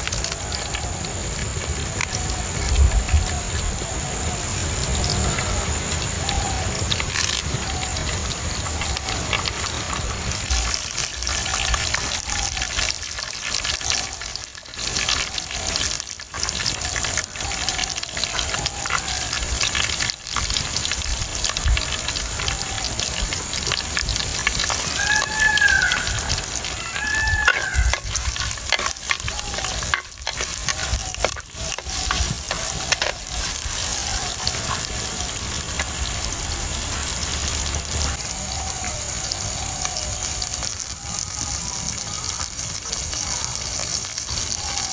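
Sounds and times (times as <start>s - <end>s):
food sizzling in hot oil: 0.0s - 44.9s
stirring in a pan: 23.3s - 36.0s.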